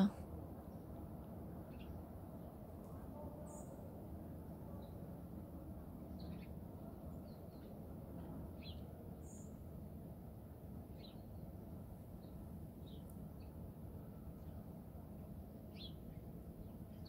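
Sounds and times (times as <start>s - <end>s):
small birds chirping: 0.0s - 3.9s, 6.0s - 9.6s, 10.9s - 14.8s, 15.7s - 17.0s.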